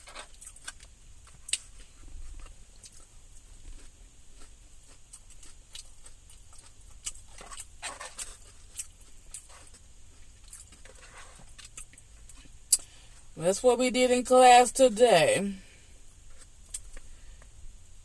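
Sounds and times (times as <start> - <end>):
person chewing food: 0.0 - 13.3, 15.7 - 17.6.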